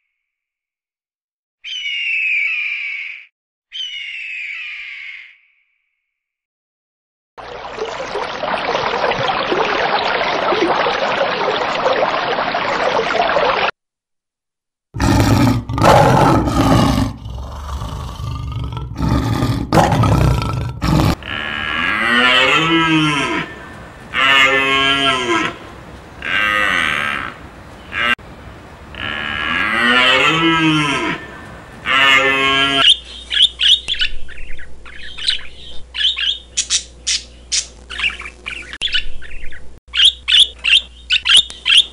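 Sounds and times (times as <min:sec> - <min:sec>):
long animal calls: 0:15.0 - 0:25.6
parrot squawks and chirps: 0:32.8 - 0:41.9.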